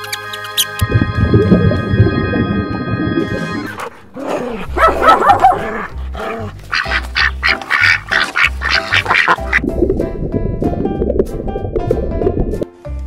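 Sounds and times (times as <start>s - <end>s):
background music with low beat: 0.1s - 13.0s
ducks quacking: 6.6s - 9.6s.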